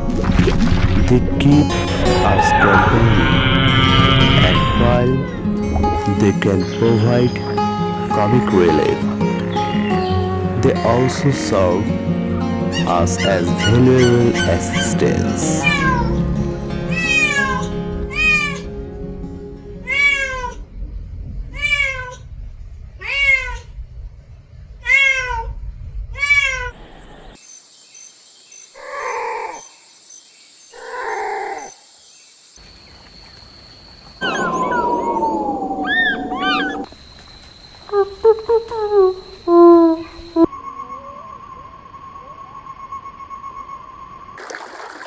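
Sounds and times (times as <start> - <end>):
cat meowing: 2.2 - 6.1, 7.0 - 10.4, 12.8 - 16.2, 16.9 - 18.7, 19.8 - 20.6, 21.5 - 22.2, 23.0 - 23.7, 24.8 - 25.5, 34.2 - 36.9, 37.8 - 40.5
cat rough calls: 2.2 - 6.1, 7.5 - 10.6, 12.7 - 16.2, 16.9 - 18.6, 34.0 - 40.5.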